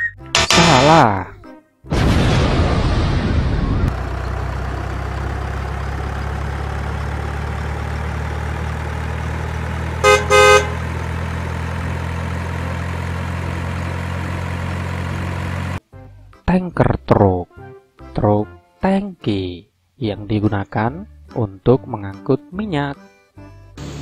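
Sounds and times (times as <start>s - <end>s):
truck engine idling: 3.9s - 15.8s
truck horn toots: 10.0s - 11.2s.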